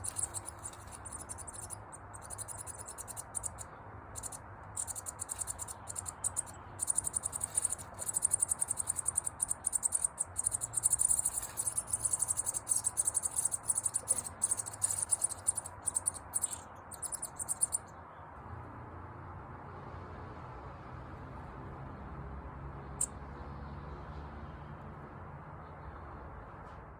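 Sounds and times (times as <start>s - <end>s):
cricket chirping trill: 0.0s - 17.9s.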